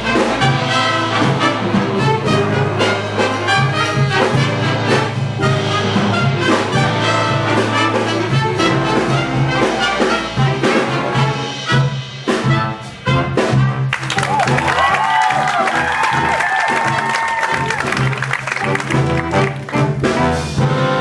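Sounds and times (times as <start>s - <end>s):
big band jazz brass: 0.0s - 21.0s
drum hits: 13.5s - 20.7s.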